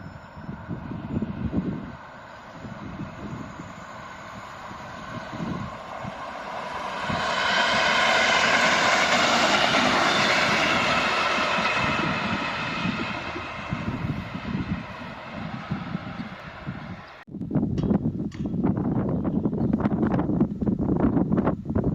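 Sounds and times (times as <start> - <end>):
electric train passing: 0.0 - 17.2
whining tone: 0.0 - 17.2
wind buffeting microphone: 0.0 - 21.9.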